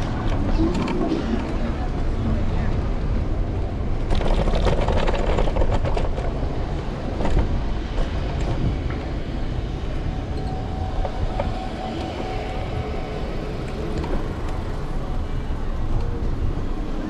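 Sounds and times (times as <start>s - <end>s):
street traffic: 0.0s - 17.0s
wind rumble: 0.0s - 17.0s
scooter rattling: 4.0s - 8.6s.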